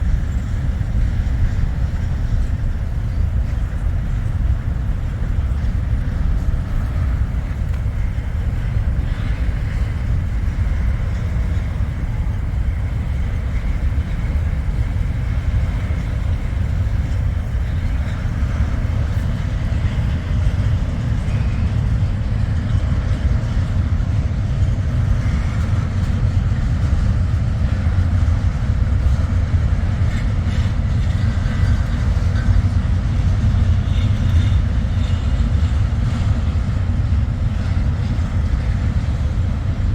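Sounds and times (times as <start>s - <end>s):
freight train rumbling on rails: 0.0s - 39.9s.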